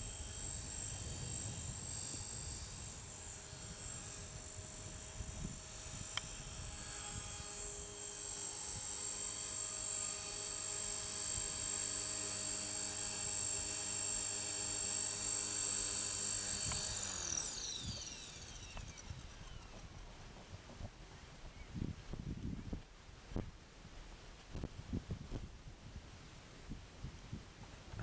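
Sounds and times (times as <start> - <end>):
rc helicopter motor whine: 0.0 - 21.6.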